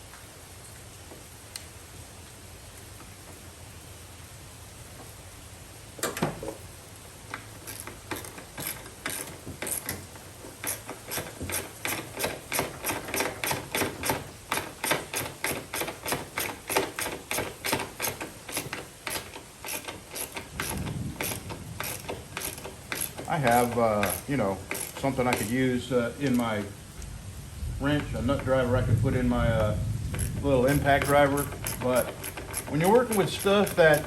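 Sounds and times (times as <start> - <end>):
hand ratchet clicking: 7.3 - 26.6, 29.6 - 34.0.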